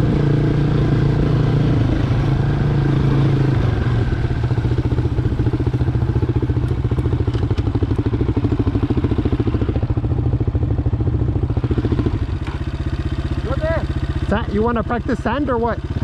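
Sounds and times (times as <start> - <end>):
motorcycle engine idling: 3.4 - 16.0.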